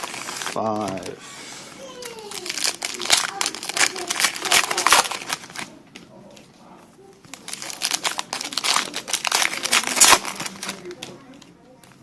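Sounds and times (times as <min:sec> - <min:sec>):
foil wrappers crinkling: 0:00.0 - 0:01.2, 0:01.8 - 0:05.8, 0:07.2 - 0:11.5.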